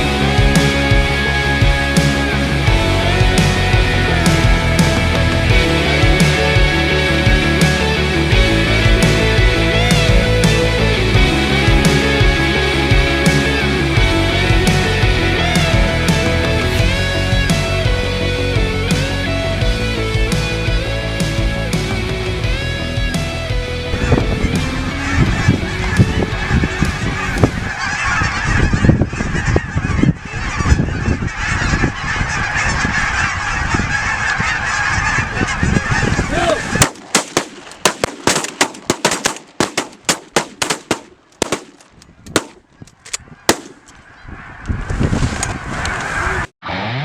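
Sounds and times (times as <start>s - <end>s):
geese honking: 23.8s - 46.5s
shotgun blasts: 36.6s - 44.0s.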